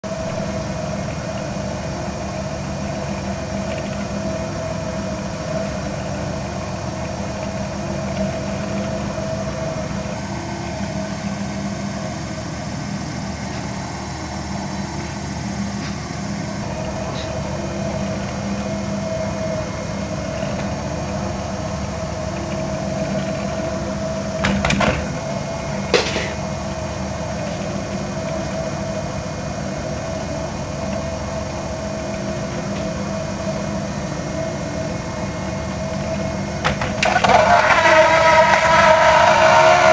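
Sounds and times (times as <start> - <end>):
steady mechanical hum: 0.0 - 39.9
short clatters: 24.4 - 26.6.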